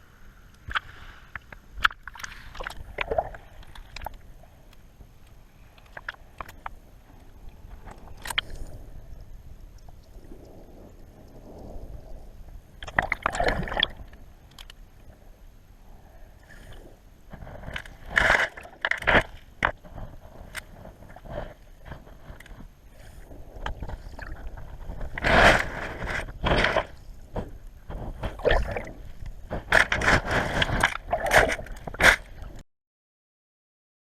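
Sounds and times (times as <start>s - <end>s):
kayak splashing and scraping: 16.6s - 32.6s.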